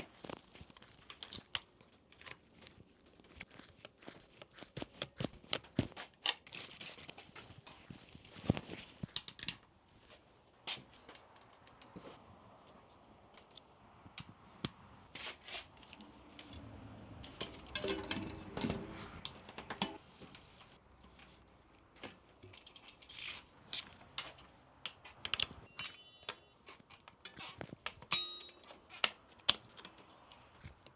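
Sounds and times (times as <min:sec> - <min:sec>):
metallic clicks of tools: 0:22.4 - 0:30.4.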